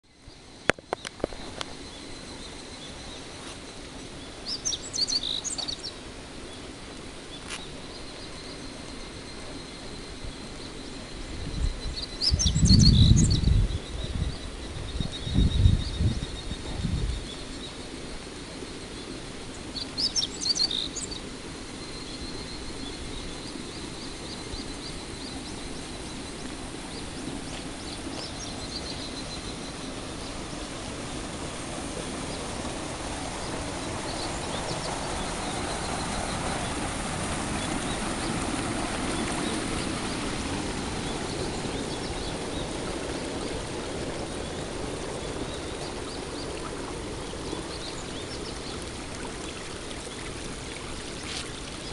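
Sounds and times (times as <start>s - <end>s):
cicadas: 0.0s - 51.9s
bird chirps: 11.6s - 14.1s.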